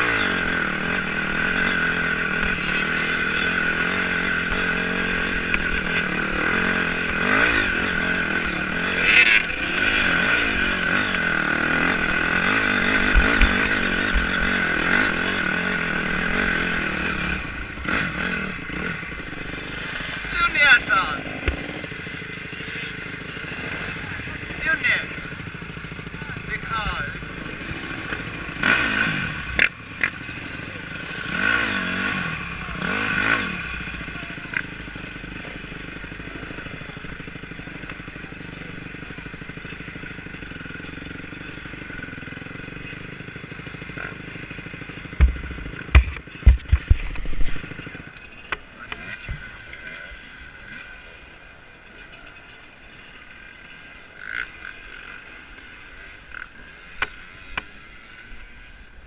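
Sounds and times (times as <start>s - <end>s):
motorcycle engine revving: 0.0s - 59.0s
heavy knocks and thumps: 45.1s - 47.2s.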